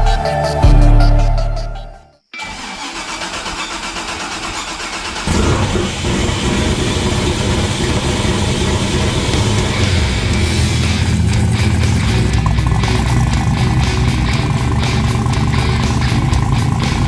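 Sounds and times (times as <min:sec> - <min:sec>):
engine starter cranking: 0:02.4 - 0:17.0
car engine running: 0:05.2 - 0:17.0.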